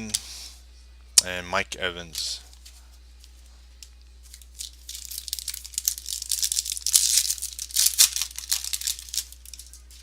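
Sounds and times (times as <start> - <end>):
wrapper tearing and crinkling: 4.3 - 10.0.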